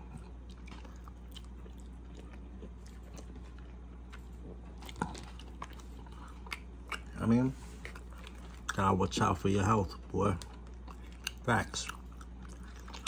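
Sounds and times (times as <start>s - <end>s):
person chewing: 0.0s - 9.2s, 9.8s - 13.0s
steady low hum: 0.0s - 13.0s.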